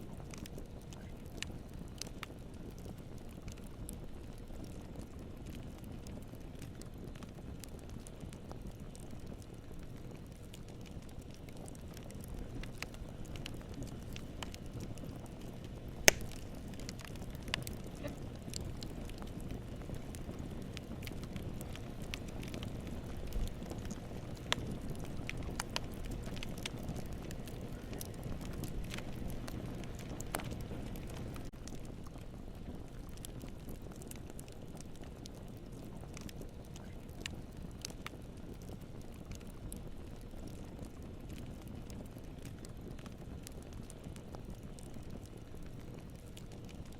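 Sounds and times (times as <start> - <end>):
burning wood crackling: 0.0 - 46.9
campfire flame rumble: 0.0 - 46.9
sharp pop of burning wood: 16.0 - 18.1.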